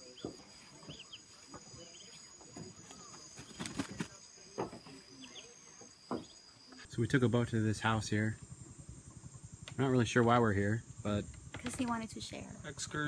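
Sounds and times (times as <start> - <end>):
insects trilling: 0.0 - 13.0
faint knocks: 5.7 - 6.4.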